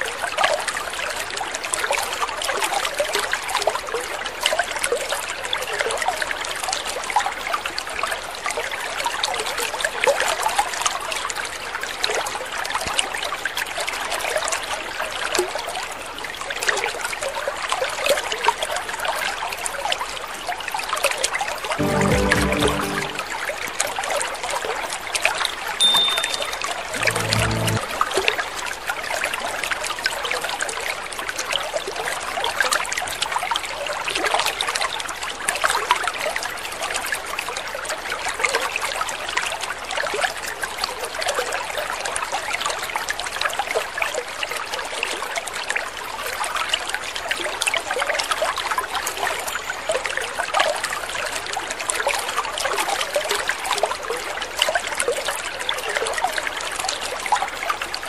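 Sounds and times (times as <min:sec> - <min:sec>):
water trickling and splashing: 0:37.4 - 0:58.0.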